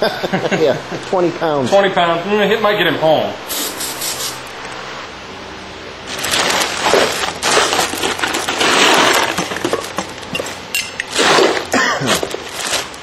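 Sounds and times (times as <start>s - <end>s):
metal parts clattering and scraping: 6.1s - 13.0s.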